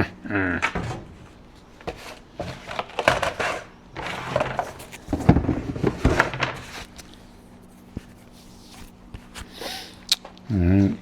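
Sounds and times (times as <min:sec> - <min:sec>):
wood and tools clattering: 0:00.0 - 0:07.2.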